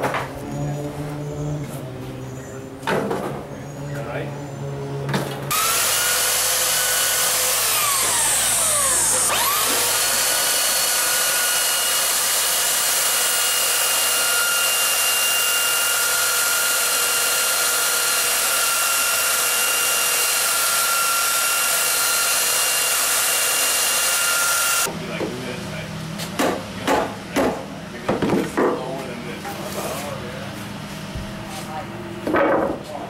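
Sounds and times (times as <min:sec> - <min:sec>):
power drill motor whining: 0:05.5 - 0:24.9.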